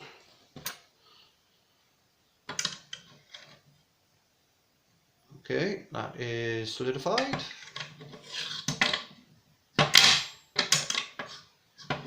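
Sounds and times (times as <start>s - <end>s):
hard objects knocking and clattering: 7.2s - 9.2s, 9.8s - 12.0s.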